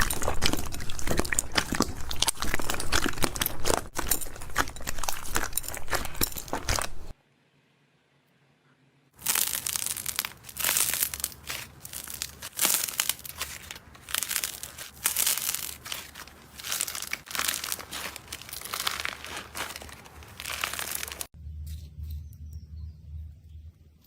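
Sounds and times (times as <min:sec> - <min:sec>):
slime crackling and popping: 0:09.2 - 0:21.4.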